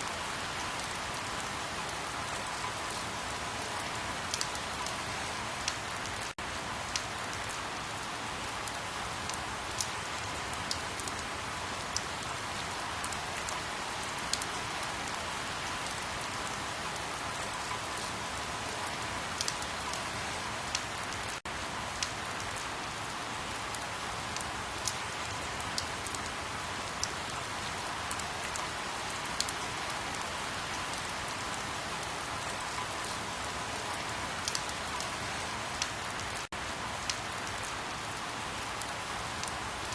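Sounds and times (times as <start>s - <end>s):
steady rain hiss: 0.0s - 39.9s
rain drop ticks: 4.3s - 5.0s, 8.6s - 11.2s, 18.8s - 20.0s, 20.7s - 21.4s, 22.0s - 22.6s, 34.4s - 35.1s, 35.8s - 37.7s.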